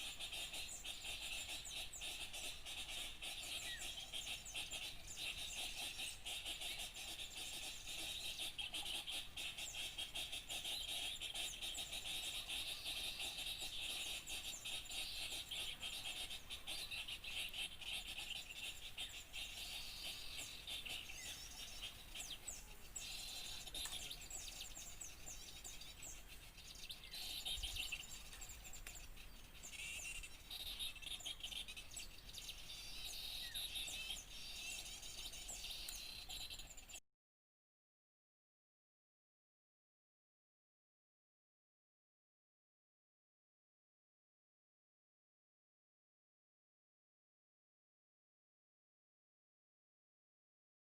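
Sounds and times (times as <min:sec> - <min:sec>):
small songbirds chirping: 0:00.0 - 0:37.0.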